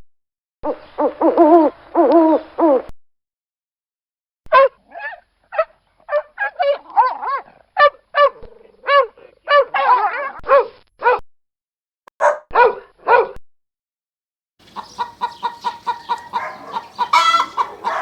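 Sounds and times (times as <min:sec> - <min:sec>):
dog barking: 0:04.5 - 0:11.2, 0:12.2 - 0:13.4, 0:15.0 - 0:18.0.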